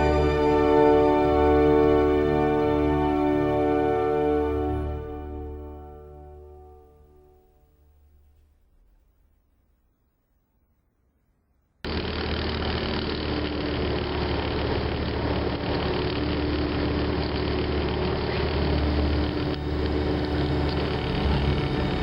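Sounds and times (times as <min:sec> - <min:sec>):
car engine idling: 0:11.9 - 0:22.0.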